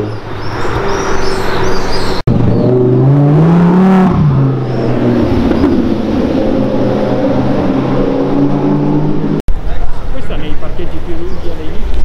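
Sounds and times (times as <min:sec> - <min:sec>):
car engine accelerating hard: 0:00.6 - 0:09.4.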